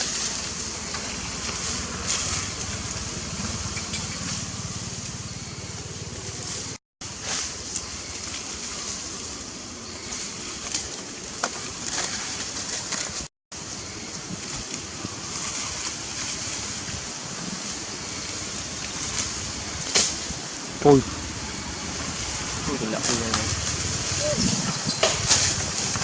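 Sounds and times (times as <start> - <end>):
steady rushing noise: 14.2 - 26.0.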